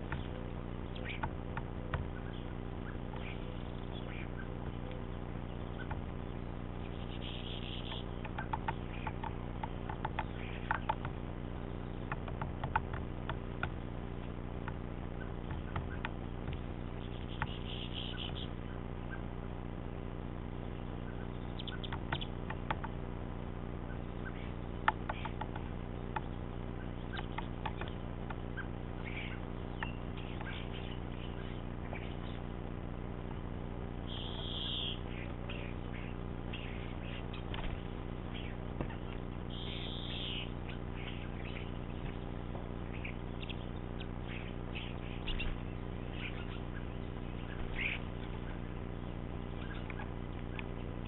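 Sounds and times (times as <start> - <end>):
woodpecker tapping on wood: 0.0 - 0.4, 1.0 - 2.3, 5.8 - 6.2, 7.8 - 11.3, 12.0 - 13.8, 14.6 - 18.5, 21.6 - 23.0, 24.8 - 26.4, 27.1 - 28.4
faint short bird calls: 0.0 - 9.4, 16.9 - 19.4, 23.8 - 32.5, 34.0 - 51.0
steady low hum: 0.0 - 51.0.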